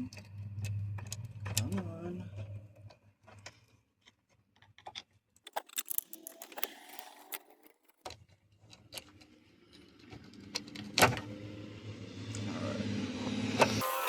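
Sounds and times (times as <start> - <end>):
switch clicking and rattling: 5.5 - 8.0.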